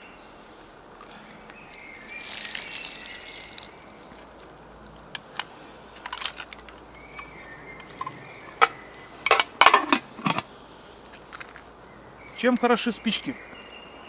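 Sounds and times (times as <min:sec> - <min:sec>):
objects clattering against metal pot: 0:05.2 - 0:10.5.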